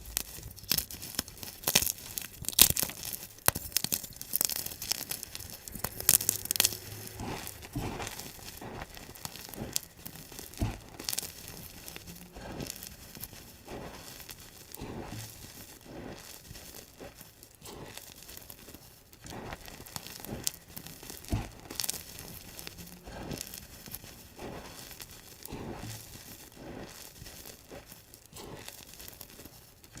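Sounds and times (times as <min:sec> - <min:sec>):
sharp cracks: 0:00.0 - 0:12.9
chalk blocks crunching: 0:00.0 - 0:30.0.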